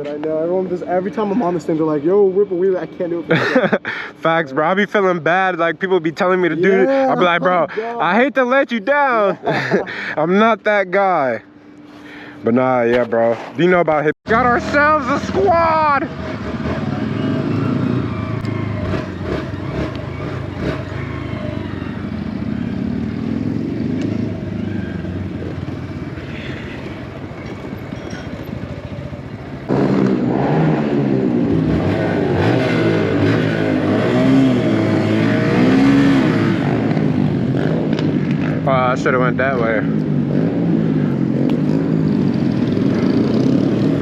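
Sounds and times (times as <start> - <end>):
motorbike engine running: 14.3 - 44.0.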